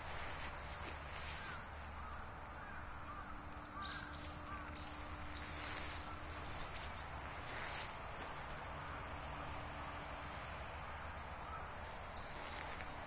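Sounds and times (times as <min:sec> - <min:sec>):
birds chirping: 0:00.0 - 0:09.9, 0:10.6 - 0:13.0
low background rumble: 0:00.0 - 0:13.0
sharp high bird calls: 0:01.3 - 0:08.0.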